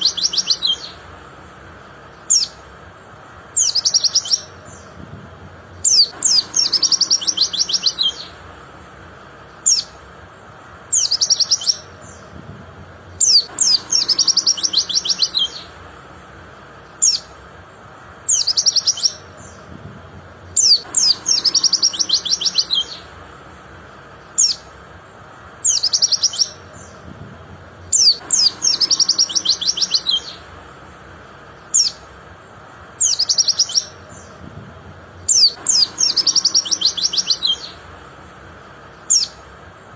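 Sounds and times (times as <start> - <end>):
bird chirping and trilling: 0.0 - 1.3, 1.9 - 5.1, 5.7 - 8.6, 9.4 - 10.1, 10.8 - 12.4, 13.1 - 15.9, 16.8 - 17.4, 18.1 - 19.7, 20.4 - 23.2, 24.0 - 24.8, 25.5 - 27.1, 27.8 - 30.6, 31.4 - 32.2, 32.8 - 34.4, 35.2 - 38.1, 38.8 - 39.6.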